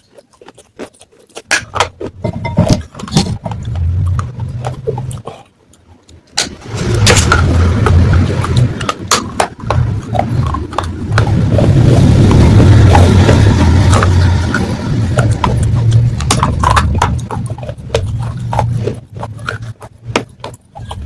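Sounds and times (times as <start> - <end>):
crunching and chewing clay: 0.0 - 21.0.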